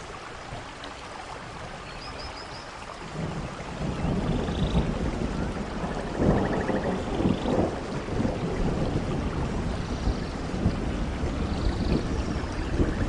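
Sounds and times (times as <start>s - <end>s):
steady rain: 0.0s - 13.0s
rolling thunder: 3.1s - 13.0s.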